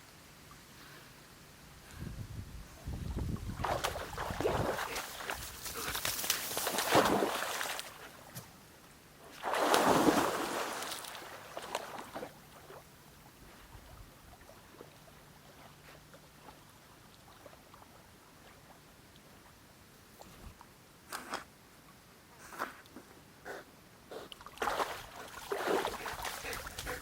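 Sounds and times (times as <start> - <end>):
faint water lapping: 2.7 - 21.5, 22.3 - 27.0
water splashing: 3.4 - 8.3, 9.4 - 12.8, 24.4 - 27.0.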